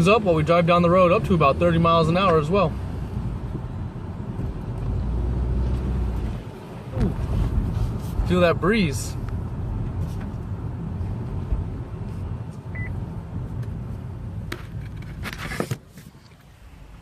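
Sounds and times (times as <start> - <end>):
road and wind noise: 0.0 - 17.0.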